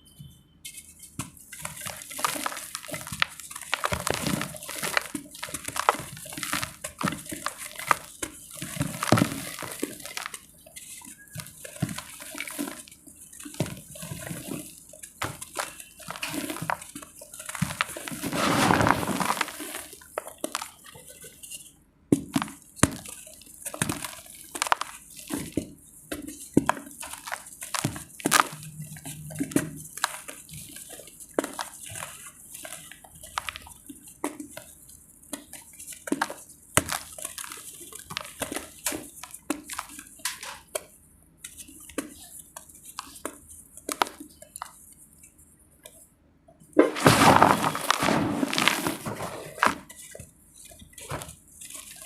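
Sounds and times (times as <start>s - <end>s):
dry clay being crushed: 1.5s - 10.5s, 13.5s - 20.8s, 22.3s - 25.5s, 26.6s - 30.5s, 46.8s - 49.9s.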